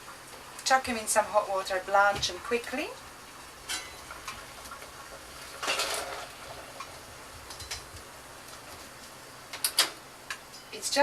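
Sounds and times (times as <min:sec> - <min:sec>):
utensils clinking on pot: 0:03.7 - 0:04.0, 0:05.6 - 0:06.3.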